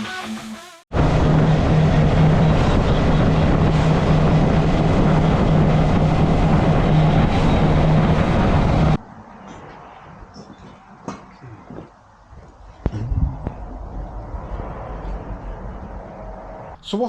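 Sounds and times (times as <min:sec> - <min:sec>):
heavy rushing noise: 0:00.9 - 0:09.0, 0:12.8 - 0:16.8.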